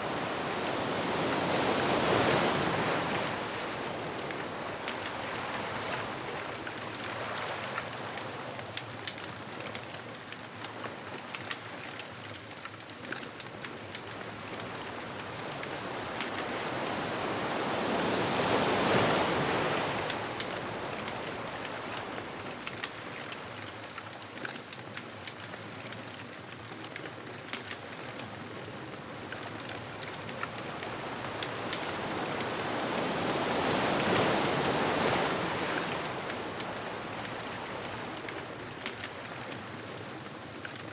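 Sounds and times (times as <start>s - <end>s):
surf washing onto beach: 0.0s - 9.4s, 13.5s - 23.7s, 28.0s - 40.9s
bonfire crackling: 0.0s - 17.3s, 18.6s - 40.9s.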